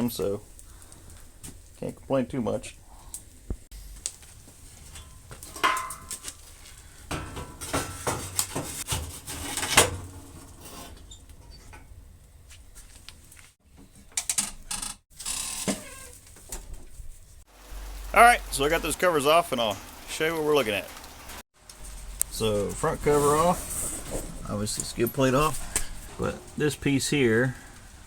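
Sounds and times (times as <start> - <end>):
metal tools clanking and rattling: 4.9 - 6.3, 7.1 - 11.8.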